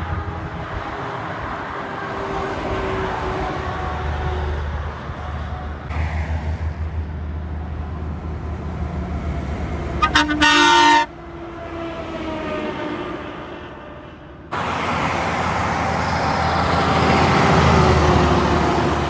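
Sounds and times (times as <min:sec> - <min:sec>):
truck diesel engine rumbling: 0:02.7 - 0:11.8, 0:14.5 - 0:19.0
truck horn toots and blast: 0:10.0 - 0:11.2.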